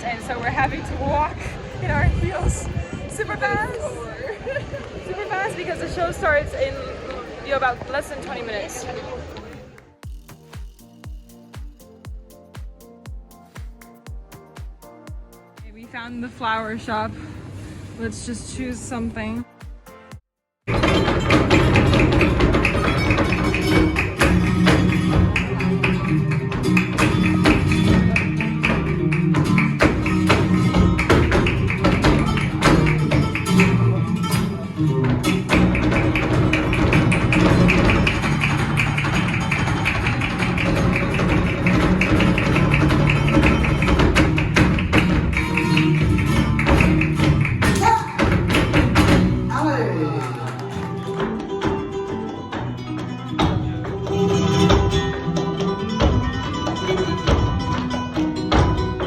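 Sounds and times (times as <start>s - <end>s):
flamenco guitar: 0.0s - 12.2s, 20.7s - 59.0s
sharp percussive taps: 10.0s - 15.8s, 19.6s - 34.4s, 35.2s - 49.5s.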